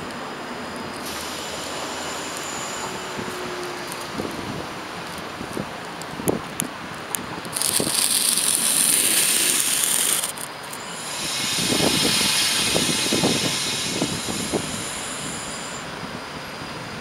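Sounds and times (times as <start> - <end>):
loud steady hiss: 0.0 - 17.0
faint high squeal: 0.7 - 3.6, 10.8 - 15.9
train wheels clicking over rail joints: 1.0 - 15.8.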